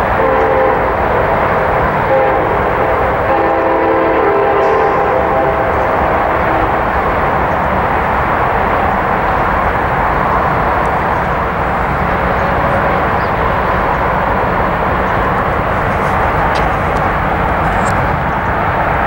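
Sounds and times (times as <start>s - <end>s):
train horn: 0.0s - 7.2s
locomotive engine and wheels rumbling: 0.0s - 19.0s.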